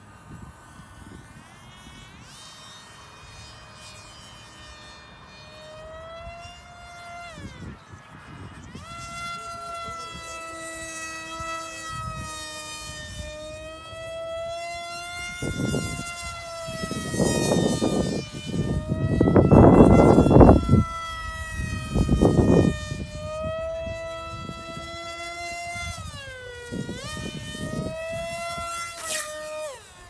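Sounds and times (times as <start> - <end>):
model plane electric motor whine: 0.0 - 30.0
wind buffeting microphone: 7.3 - 29.8.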